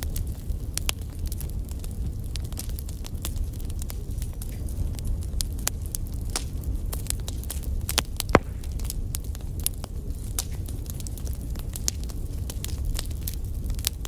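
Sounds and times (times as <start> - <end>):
fire crackles and snaps: 0.0 - 14.0
fire flames rumbling: 0.0 - 14.0
loud fire pop: 8.2 - 9.2.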